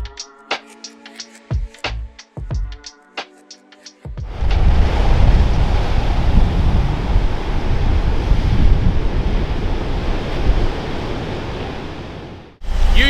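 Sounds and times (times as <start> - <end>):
heavy surf breaking: 4.2 - 13.0
wind buffeting microphone: 4.2 - 13.0.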